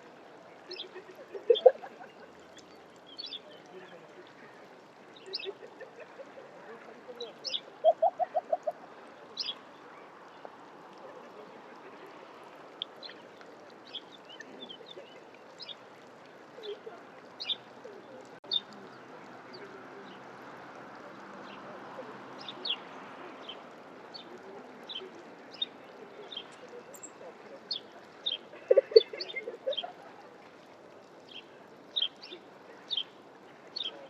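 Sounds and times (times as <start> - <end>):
small birds chirping: 2.5 - 3.9.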